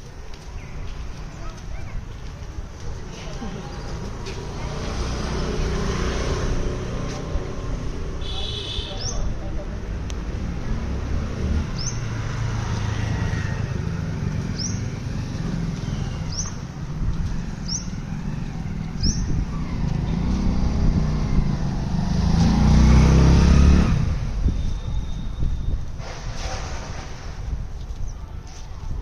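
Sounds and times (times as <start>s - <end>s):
motor vehicle passing: 3.3s - 8.2s, 9.0s - 24.5s
bird chirping: 11.8s - 12.1s, 14.5s - 15.0s, 15.7s - 16.6s, 19.0s - 19.4s.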